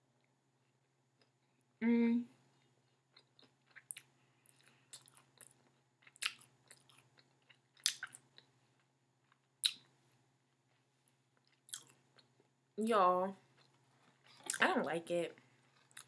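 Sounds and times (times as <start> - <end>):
person chewing crunchy food: 2.6 - 9.9, 11.1 - 12.4, 13.5 - 14.6, 15.6 - 16.0.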